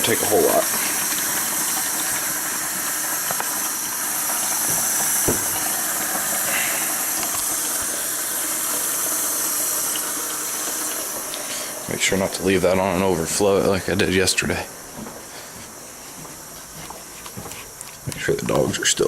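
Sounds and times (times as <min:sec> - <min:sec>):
water running from tap into bucket: 0:00.0 - 0:14.4.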